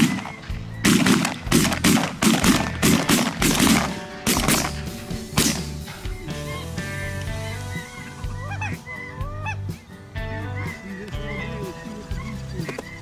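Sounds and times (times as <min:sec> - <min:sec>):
rapid shotgun shots: 0:00.0 - 0:05.8
background music: 0:00.0 - 0:13.0.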